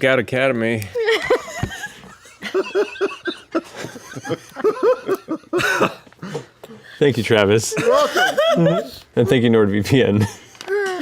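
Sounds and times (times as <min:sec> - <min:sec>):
people laughing: 0:01.0 - 0:06.5, 0:07.6 - 0:09.4.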